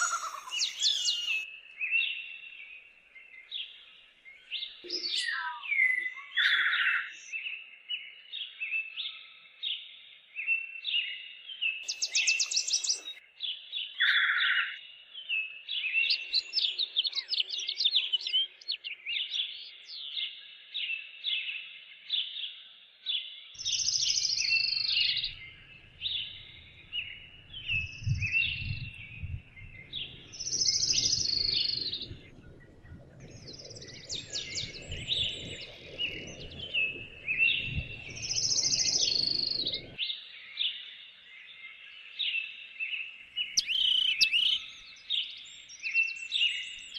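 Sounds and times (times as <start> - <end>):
songbirds chirping: 0.0 - 46.9
low rumbling noise: 24.7 - 40.0.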